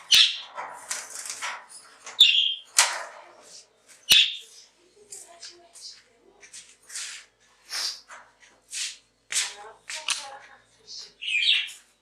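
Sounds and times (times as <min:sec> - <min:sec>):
goldfinches chirping: 0:00.0 - 0:00.6, 0:02.2 - 0:02.7, 0:04.0 - 0:04.7, 0:10.8 - 0:11.8.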